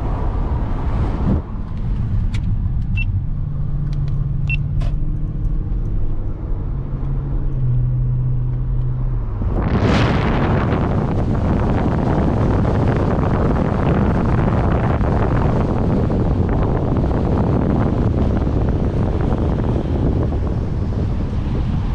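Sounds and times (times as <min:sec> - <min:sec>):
wind noise on microphone: 0:00.0 - 0:03.7, 0:08.8 - 0:21.9
car engine running at low revs: 0:00.0 - 0:21.9.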